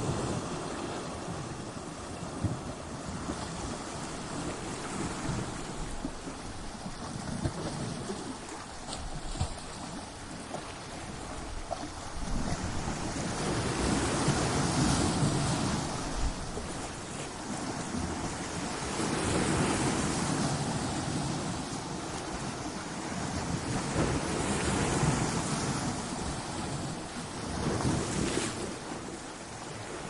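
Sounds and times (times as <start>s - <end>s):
ocean waves breaking on rocks: 0.0s - 30.0s.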